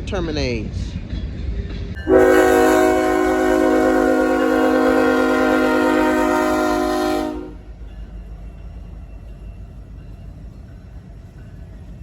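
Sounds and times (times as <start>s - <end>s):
locomotive air horn blast: 2.0s - 7.7s.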